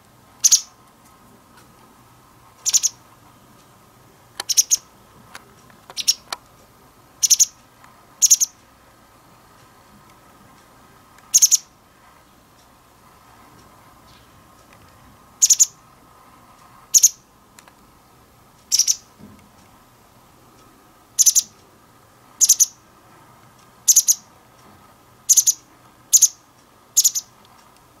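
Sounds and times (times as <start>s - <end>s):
bird calling sharply: 0.4s - 0.7s, 2.6s - 3.0s, 4.5s - 4.9s, 6.0s - 6.3s, 18.7s - 19.1s, 23.9s - 24.3s, 25.3s - 26.4s, 27.0s - 27.3s.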